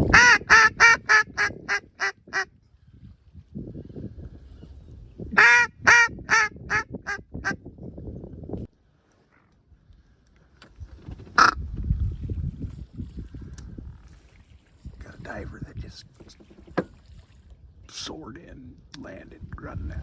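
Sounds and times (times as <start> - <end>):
wind rumbling on microphone: 0.0 - 8.8, 9.7 - 20.0
duck call quacking: 0.1 - 2.5, 5.4 - 7.6, 11.4 - 11.6.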